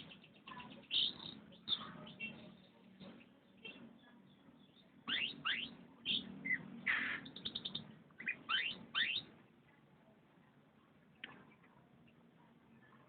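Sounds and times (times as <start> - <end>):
canary singing: 0.0 - 9.4.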